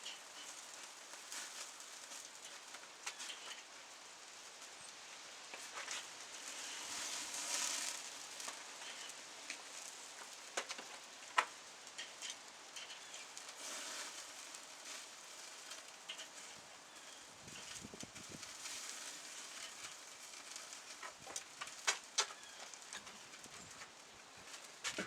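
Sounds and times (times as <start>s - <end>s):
meat sizzling: 0.0s - 24.9s
fire crackling: 0.0s - 25.0s.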